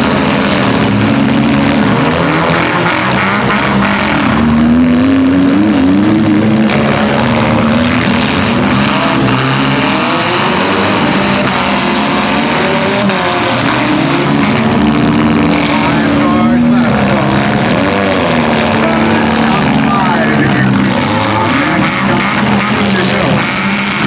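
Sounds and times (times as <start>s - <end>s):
car engines revving: 0.0s - 24.0s.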